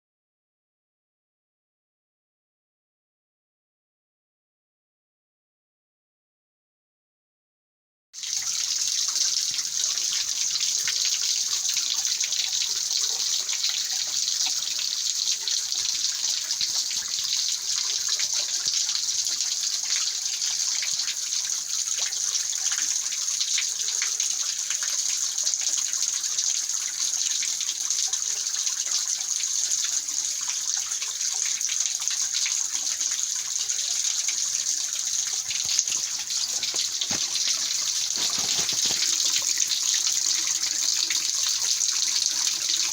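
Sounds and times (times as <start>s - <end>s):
stream running over rocks: 33.4s - 42.9s.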